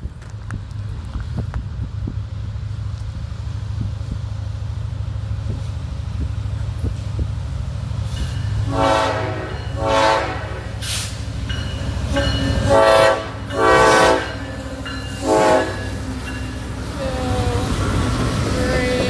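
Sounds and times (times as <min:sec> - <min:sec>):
train rumble: 0:00.0 - 0:19.0
locomotive air horn blasts: 0:08.6 - 0:11.2, 0:12.1 - 0:14.6, 0:15.2 - 0:16.0.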